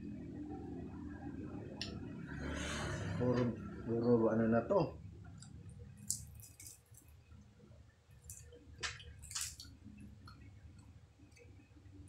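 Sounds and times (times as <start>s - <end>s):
wet chewing: 5.4s - 7.1s
crunching fried food: 5.9s - 7.2s.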